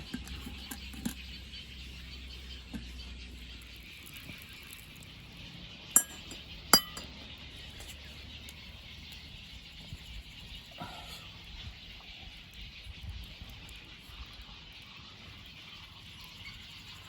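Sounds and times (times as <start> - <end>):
camp cookware clinks: 6.0 - 7.2.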